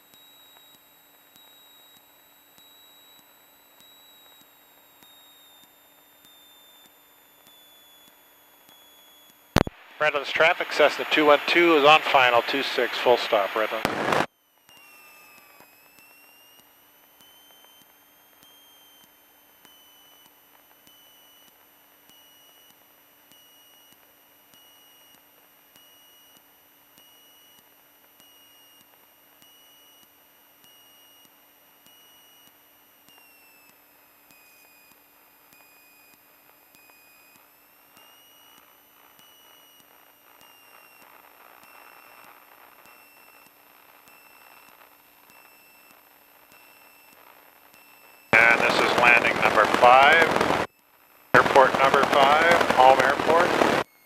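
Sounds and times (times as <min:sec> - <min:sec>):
soft rush of cockpit noise: 0:10.0 - 0:14.3, 0:48.4 - 0:50.7, 0:51.4 - 0:53.8
high-pitched electrical whine: 0:51.4 - 0:53.8.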